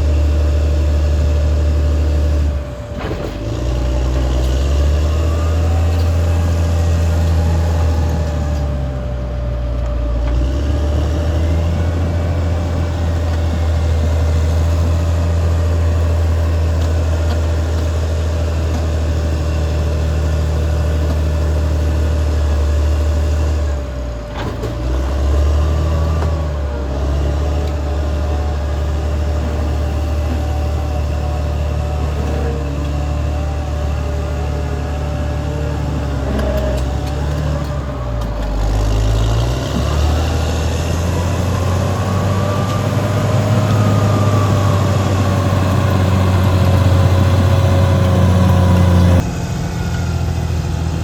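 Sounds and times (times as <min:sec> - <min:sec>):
bulldozer diesel engine running: 0:00.0 - 0:51.0
high engine whine: 0:00.0 - 0:51.0.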